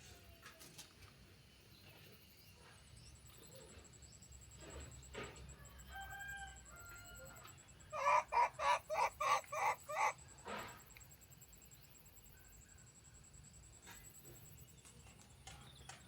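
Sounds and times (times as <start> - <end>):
animal calling: 7.9 - 10.3.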